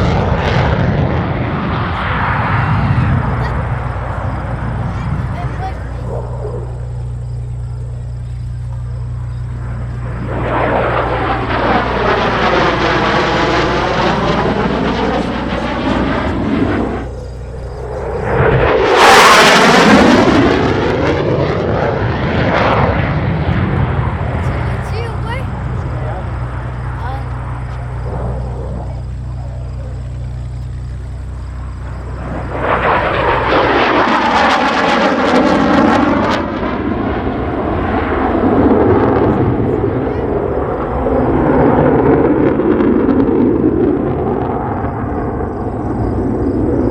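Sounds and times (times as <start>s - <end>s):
fighter jet passing: 0.0s - 46.9s.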